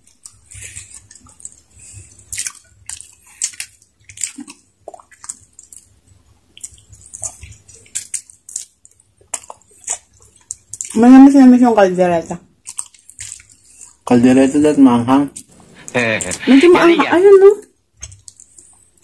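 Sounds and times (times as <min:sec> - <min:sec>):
wet chewing and lip-smacking: 0:00.0 - 0:11.0, 0:12.6 - 0:14.0, 0:17.9 - 0:19.0.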